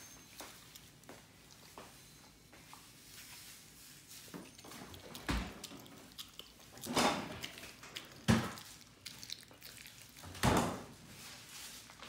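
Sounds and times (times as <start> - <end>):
dog licking: 0.4 - 2.0, 4.5 - 10.5.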